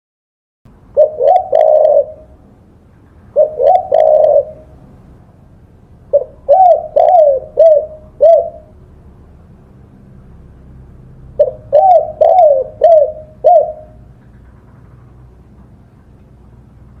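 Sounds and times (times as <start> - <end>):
dove cooing: 1.0 - 2.4, 3.3 - 4.8, 6.1 - 8.8, 11.4 - 14.4.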